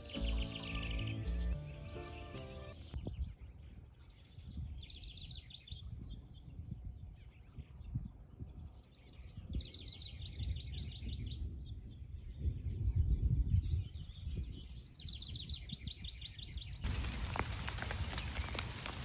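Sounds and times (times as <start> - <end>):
songbird trilling: 16.9 - 19.0.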